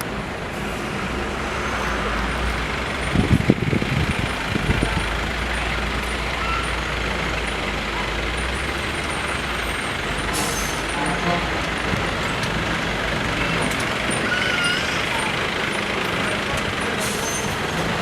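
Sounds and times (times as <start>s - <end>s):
bus engine rumble: 0.0s - 18.0s.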